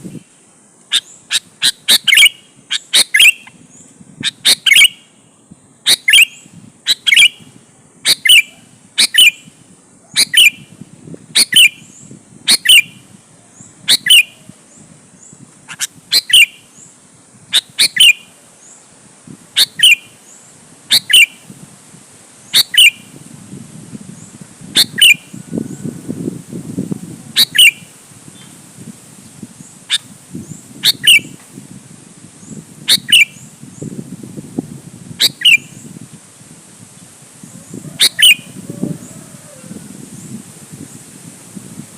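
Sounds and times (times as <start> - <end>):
bird calling sharp notes: 0.9 - 3.6, 4.2 - 5.2, 5.8 - 9.5, 13.9 - 14.4, 15.7 - 16.7, 17.5 - 18.3, 19.6 - 20.2, 20.9 - 21.4, 22.5 - 23.1, 27.4 - 27.9, 30.8 - 31.4, 37.9 - 38.6.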